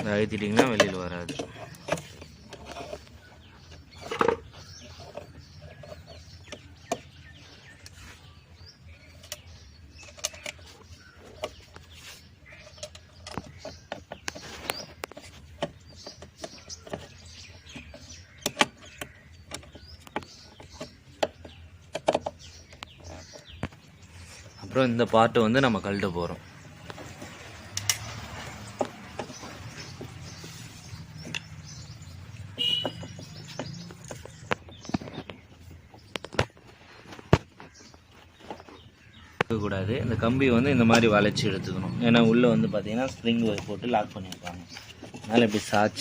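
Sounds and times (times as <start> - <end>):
clicks and knocks of parts handled: 0.0 - 7.1, 9.2 - 11.9, 12.5 - 23.8, 26.8 - 30.3
birds chirping: 0.0 - 46.0.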